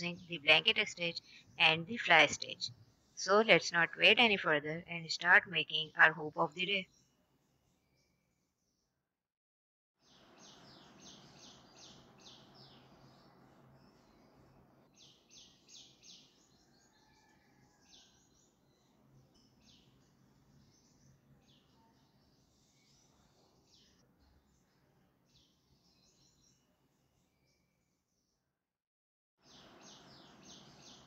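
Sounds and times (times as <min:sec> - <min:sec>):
faint bird chirping: 0:10.0 - 0:28.4.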